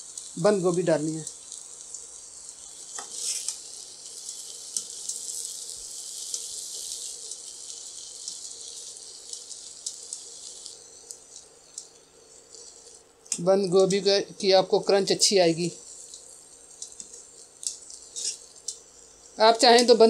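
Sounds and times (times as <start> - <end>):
food sizzling in a pan: 0.0 - 20.0
metal spatula scraping a pan: 2.9 - 3.6, 17.9 - 18.7.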